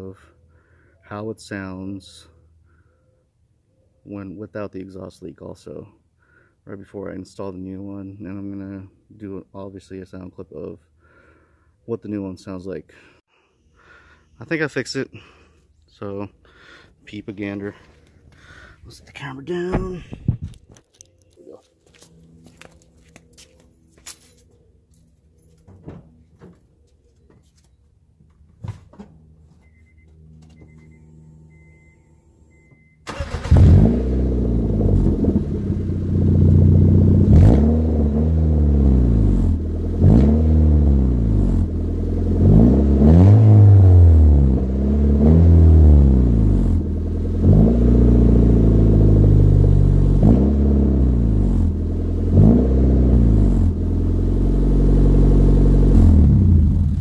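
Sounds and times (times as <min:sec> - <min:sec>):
car engine starting and revving: 0:30.5 - 0:57.0.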